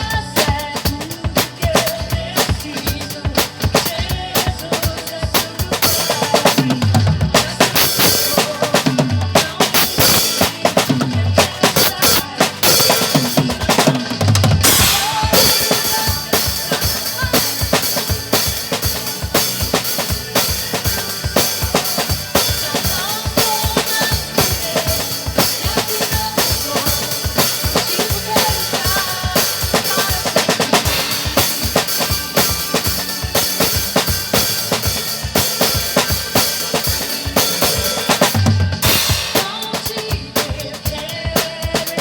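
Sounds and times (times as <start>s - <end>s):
drum kit groove: 0.0s - 42.0s
recorded song: 0.0s - 42.0s
cymbal crash: 14.6s - 16.3s.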